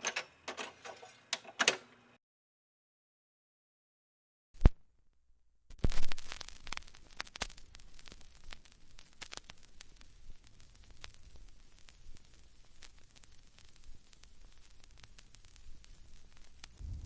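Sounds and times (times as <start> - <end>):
vinyl record surface noise: 0.0 - 2.2, 5.8 - 17.0.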